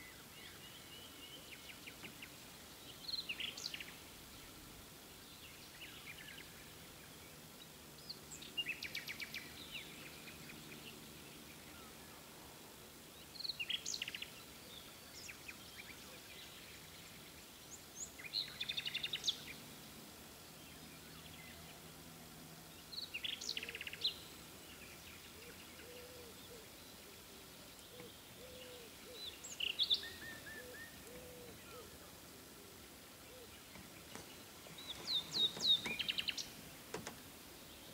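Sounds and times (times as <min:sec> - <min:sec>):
faint background hiss: 0:00.0 - 0:37.9
songbird singing: 0:00.0 - 0:37.9
low-pitched bird calls: 0:27.8 - 0:32.1, 0:33.2 - 0:37.0.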